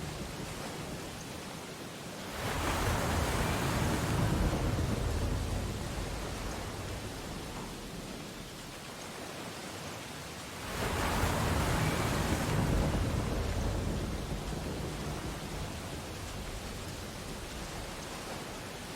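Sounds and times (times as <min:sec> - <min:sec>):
ocean wave breaking on beach: 0:02.2 - 0:08.4, 0:10.4 - 0:18.9.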